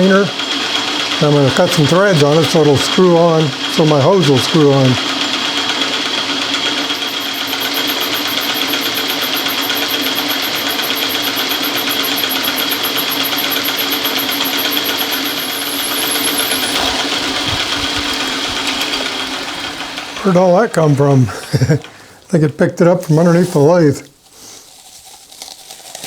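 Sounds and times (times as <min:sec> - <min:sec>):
lathe motor hum: 0:01.9 - 0:21.7
high-pitched rapid pulsing: 0:06.6 - 0:20.9.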